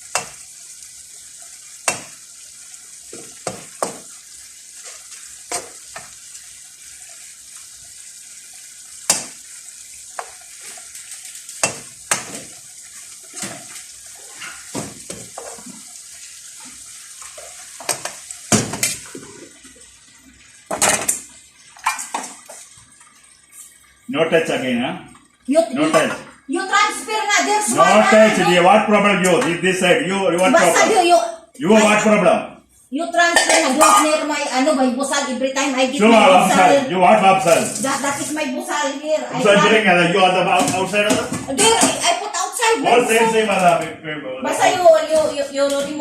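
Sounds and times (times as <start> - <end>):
utensils clinking on pots and dishes: 33.3 - 34.3.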